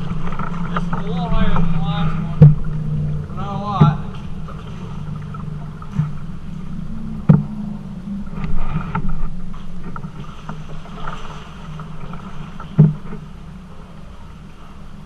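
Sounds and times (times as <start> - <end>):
paddle in water: 0.0 - 15.0
sharp knocks: 0.3 - 2.8.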